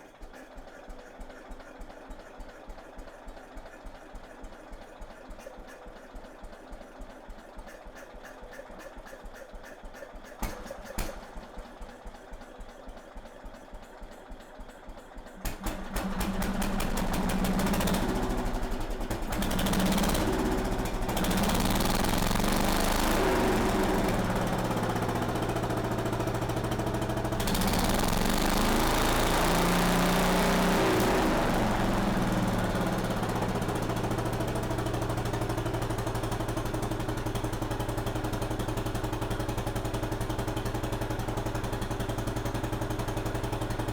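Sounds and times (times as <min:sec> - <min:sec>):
garden tractor engine running: 0:15.3 - 0:43.9.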